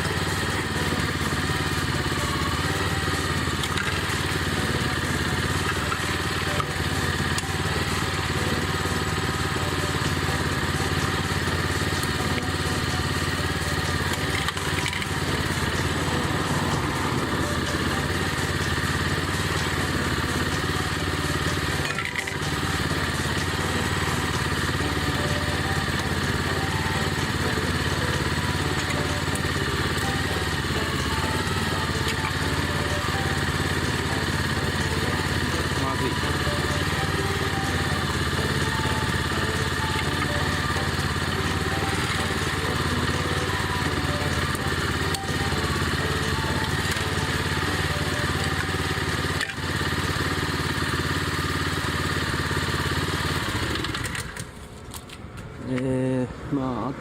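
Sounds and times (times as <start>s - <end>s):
small petrol engine running: 0.0s - 57.0s.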